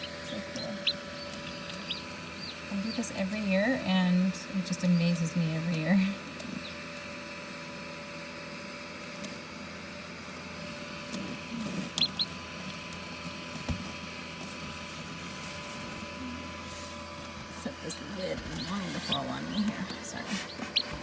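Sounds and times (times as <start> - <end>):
chick peeping: 0.0 - 5.8, 6.4 - 6.9, 11.6 - 12.8, 17.9 - 21.0
incubator fan humming: 0.0 - 21.0.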